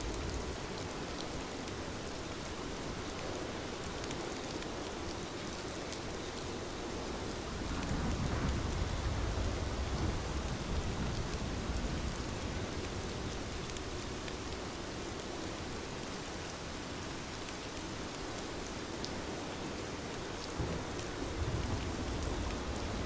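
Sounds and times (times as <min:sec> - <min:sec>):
steady rain falling: 0:00.0 - 0:23.0
thunder rumble: 0:07.5 - 0:13.9, 0:20.6 - 0:23.0.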